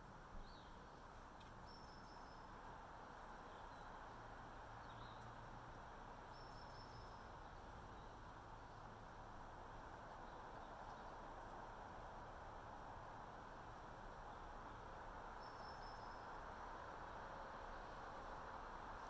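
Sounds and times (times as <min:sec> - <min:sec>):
faint forest hiss: 0:00.0 - 0:19.0
thin whistled bird notes: 0:06.3 - 0:07.2, 0:15.4 - 0:16.3
faint high bird calls: 0:06.3 - 0:08.2, 0:14.3 - 0:16.4.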